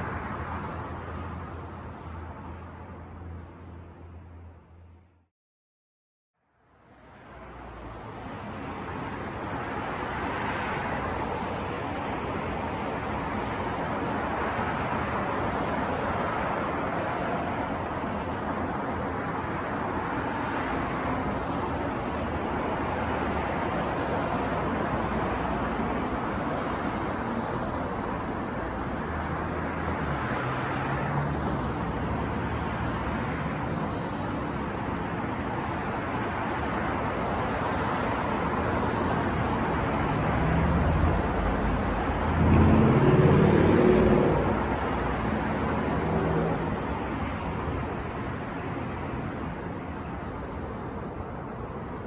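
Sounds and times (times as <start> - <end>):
passing cars: 6.6 - 52.0
vehicle engine passing close: 40.2 - 46.9.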